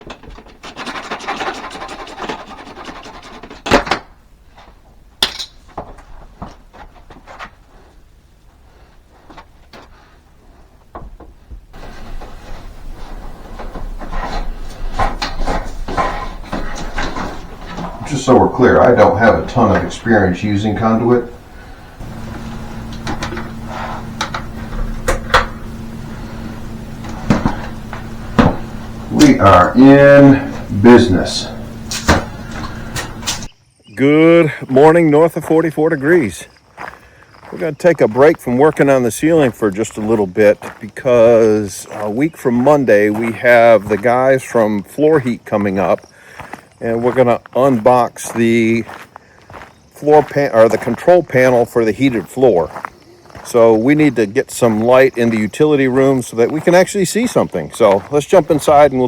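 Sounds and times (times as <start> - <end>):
hardware clicks and knocks: 0.0 - 7.5, 10.9 - 33.5
quick scraping strokes: 0.6 - 3.7
steady low hum: 5.8 - 33.5
loud knocks: 20.8 - 33.5.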